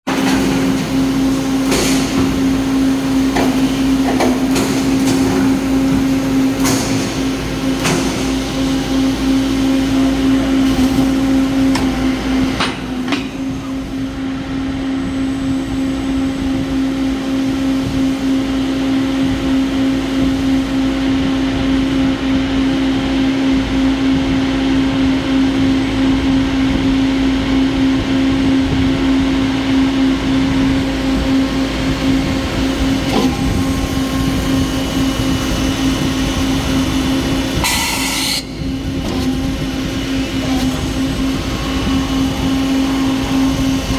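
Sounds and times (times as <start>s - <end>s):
machine humming: 0.1s - 43.9s.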